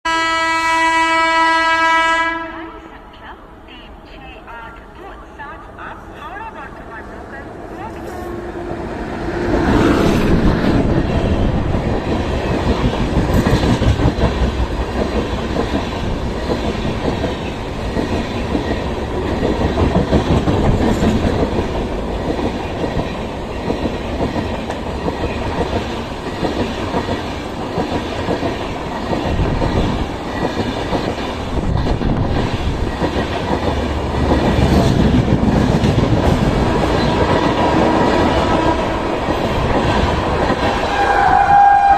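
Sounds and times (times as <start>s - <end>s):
train wheels clattering over rail joints: 10.2s - 40.8s.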